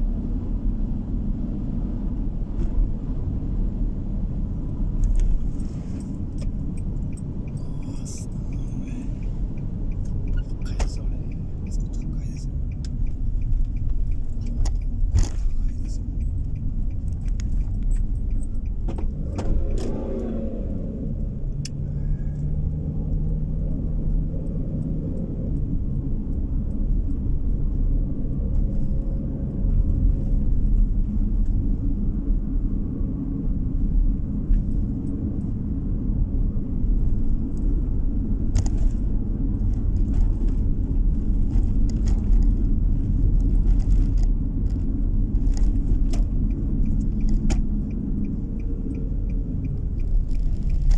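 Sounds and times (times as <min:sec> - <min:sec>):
car driving on road: 0:00.0 - 0:50.9
small clicks and rattles: 0:38.6 - 0:50.9.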